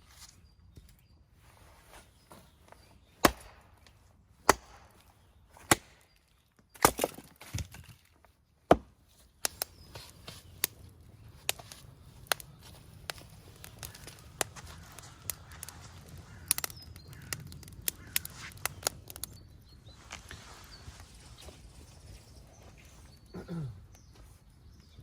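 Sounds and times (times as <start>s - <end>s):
wood being chopped: 3.2s - 6.2s, 6.8s - 7.9s, 8.7s - 10.8s, 11.4s - 19.3s.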